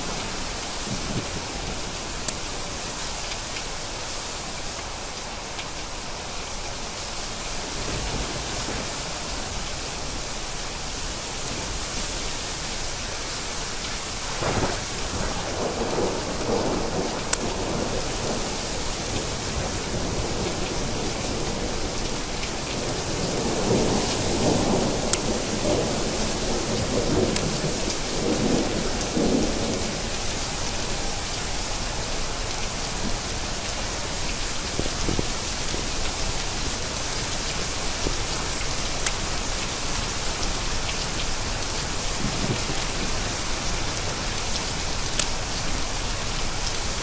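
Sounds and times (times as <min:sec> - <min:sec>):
rain hissing: 0:00.0 - 0:47.0
rolling thunder: 0:14.2 - 0:32.2
sharp ticks: 0:38.5 - 0:39.2.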